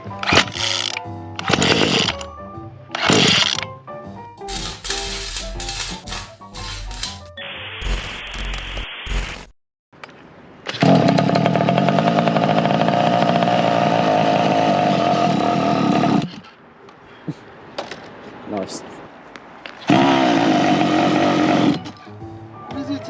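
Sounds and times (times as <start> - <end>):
small petrol engine buzzing: 0.0 - 2.2, 3.0 - 3.6, 10.7 - 16.5, 19.8 - 22.0.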